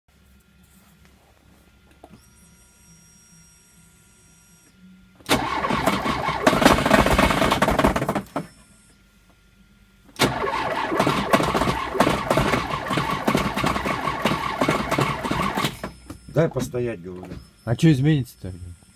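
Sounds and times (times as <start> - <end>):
car engine starting: 5.3 - 8.2, 10.2 - 15.9
car engine knocking: 10.6 - 15.8.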